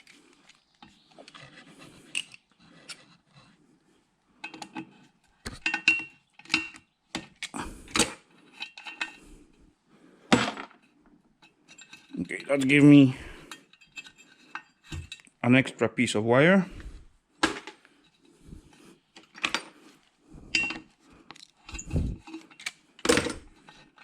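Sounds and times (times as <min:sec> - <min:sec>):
metal parts clinking and knocking: 0:02.1 - 0:03.1, 0:04.4 - 0:09.2, 0:11.7 - 0:15.3, 0:20.5 - 0:24.0.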